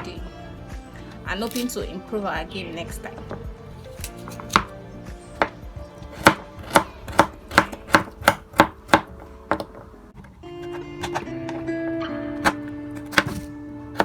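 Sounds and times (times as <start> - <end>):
knife chopping on cutting board: 4.1 - 4.7, 5.4 - 9.8, 12.4 - 14.0.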